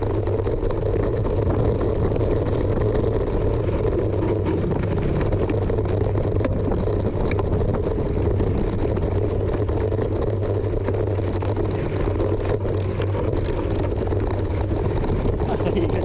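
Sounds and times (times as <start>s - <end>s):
bike riding rumble: 0.0s - 16.0s
sharp clicks from bike: 0.0s - 16.0s
wind on microphone: 0.0s - 16.0s.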